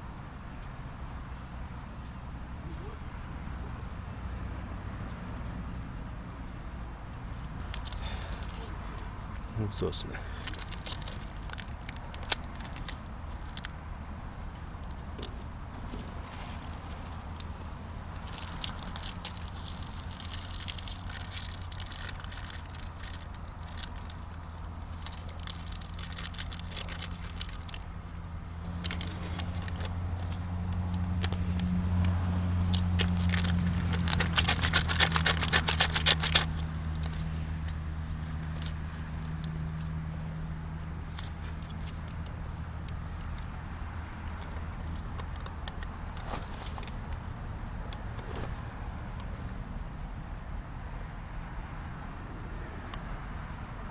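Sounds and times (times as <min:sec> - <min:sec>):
low engine-like hum: 0:00.0 - 0:53.9
campfire crackling and popping: 0:16.0 - 0:39.5.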